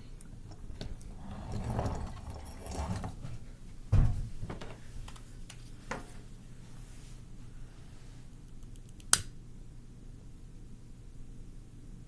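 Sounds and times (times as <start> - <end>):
shuffling and metal clinks: 0.3 - 3.8
loud thump: 3.9 - 4.6.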